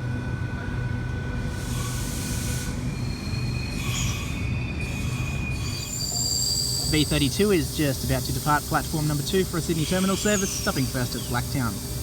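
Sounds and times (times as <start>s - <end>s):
train running hum: 0.0s - 12.0s
wheel and brake squeals: 1.6s - 7.4s, 9.7s - 12.0s.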